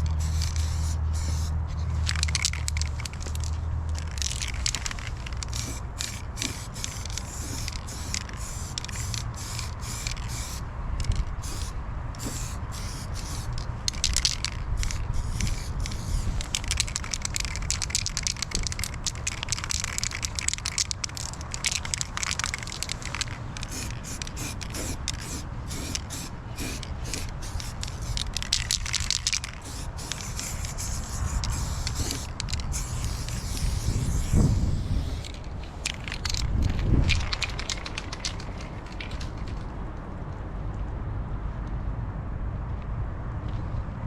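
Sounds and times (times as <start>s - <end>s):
spraying hiss in spurts: 0.0s - 39.4s
steady low rumble: 0.0s - 44.0s.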